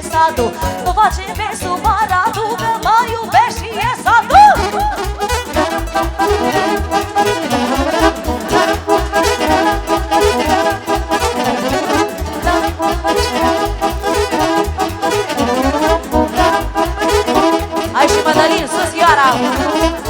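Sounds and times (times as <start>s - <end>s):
accordion: 0.0s - 20.0s
steady bass beat: 0.0s - 20.0s
saxophone: 4.3s - 20.0s.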